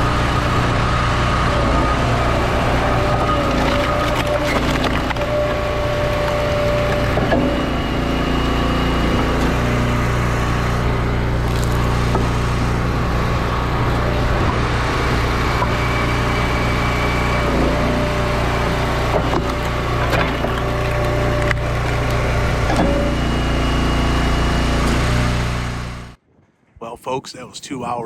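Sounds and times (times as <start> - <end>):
log splitter engine running: 0.0 - 26.1
wood cracking as it splits: 3.0 - 7.3, 19.4 - 22.8.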